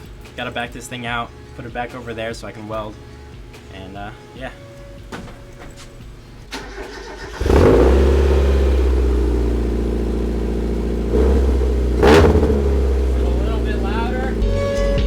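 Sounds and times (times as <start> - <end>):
car engine starting and idling: 2.6 - 15.0
car engine revving: 5.5 - 15.0.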